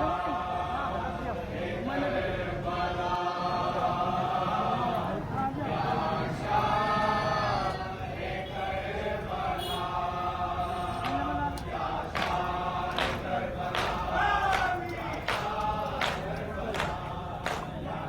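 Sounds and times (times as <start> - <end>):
men chanting together: 0.0 - 18.0
sharp slaps or claps: 10.9 - 17.9.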